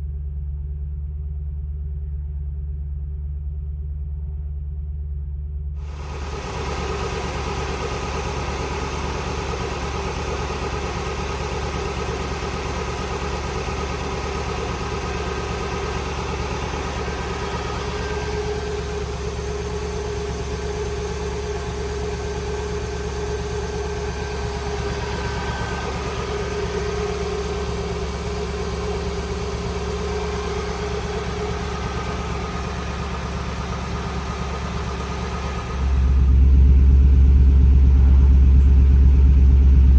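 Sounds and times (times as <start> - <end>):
car engine idling: 5.8 - 39.9.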